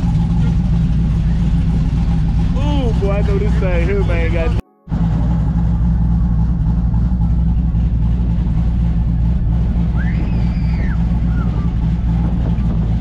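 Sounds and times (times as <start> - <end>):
car engine idling: 0.0 - 13.0
rising and falling high tone: 9.8 - 11.9.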